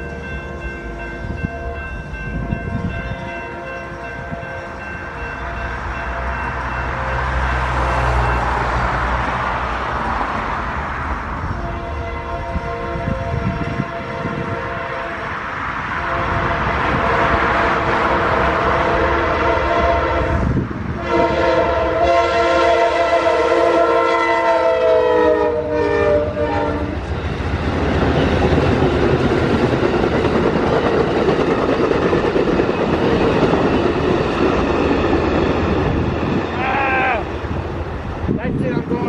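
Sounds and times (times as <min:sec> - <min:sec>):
train rumble and wheel clatter: 0:00.0 - 0:39.0
train horn blasts: 0:05.2 - 0:07.1, 0:11.5 - 0:27.0.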